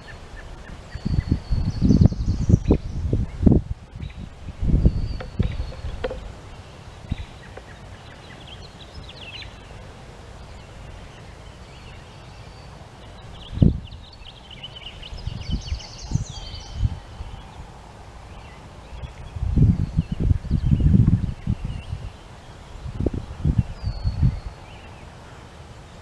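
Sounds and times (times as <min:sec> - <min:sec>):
songbirds chirping: 0:00.0 - 0:26.0
thumps on the microphone: 0:05.1 - 0:06.3.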